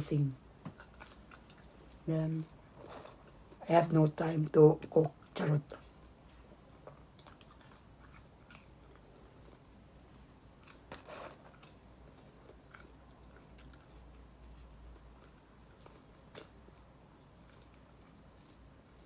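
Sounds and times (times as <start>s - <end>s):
person chewing food: 0.6s - 2.0s, 5.8s - 19.0s.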